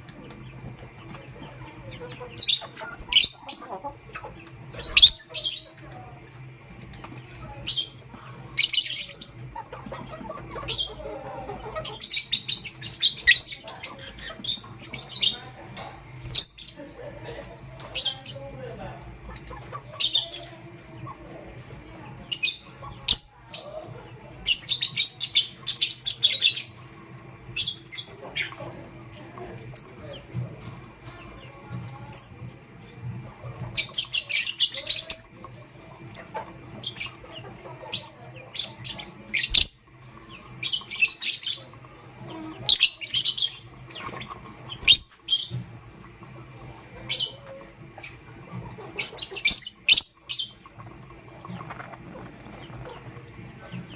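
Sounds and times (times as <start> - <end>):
faint steady hum: 0.0 - 53.9
lovebirds chirping: 0.0 - 53.9.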